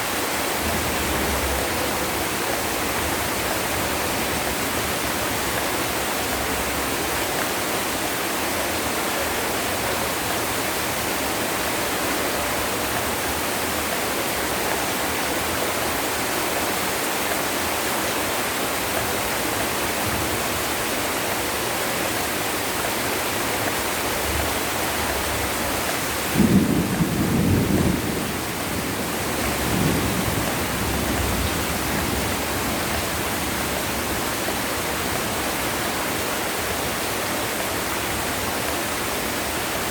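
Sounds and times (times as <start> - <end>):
heavy rain: 0.0 - 39.9
thunder clap and rumble: 26.2 - 33.6.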